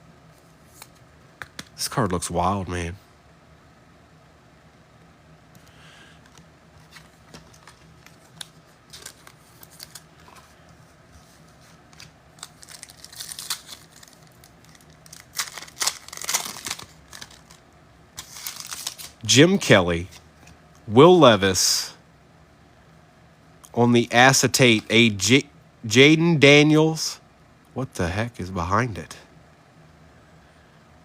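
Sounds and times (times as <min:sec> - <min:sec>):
wrappers crinkling and cards rustling: 0:06.2 - 0:20.6.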